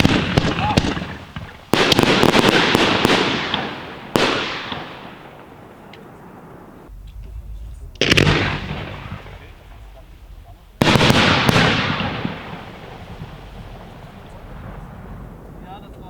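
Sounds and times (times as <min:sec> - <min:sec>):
firework bangs: 0:00.0 - 0:16.0
firework crackling: 0:00.0 - 0:16.0
low rumble: 0:06.2 - 0:16.0.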